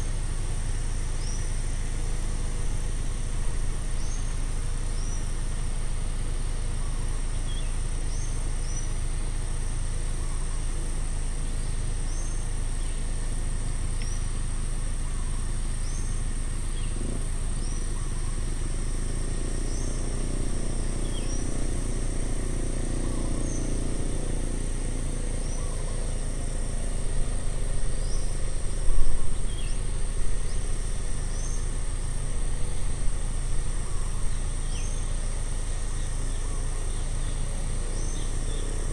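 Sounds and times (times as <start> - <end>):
constant low rumble: 0.0 - 38.9
high insect hum: 0.0 - 38.9
vehicle passing: 18.4 - 34.3.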